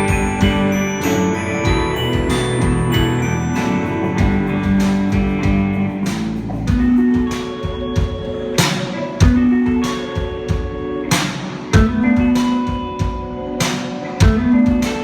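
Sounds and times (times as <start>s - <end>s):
band playing indie-pop: 0.0s - 15.0s
guitar: 0.0s - 15.0s.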